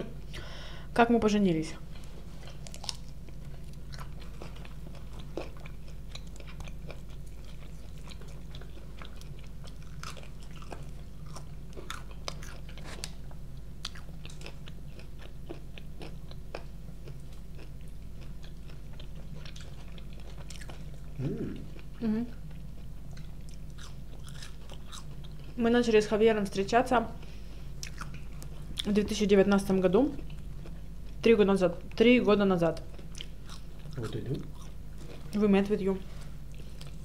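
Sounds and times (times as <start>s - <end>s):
steady low hum: 0.0s - 37.0s
chewing fried chicken: 2.0s - 25.6s, 27.2s - 29.0s, 32.8s - 35.4s.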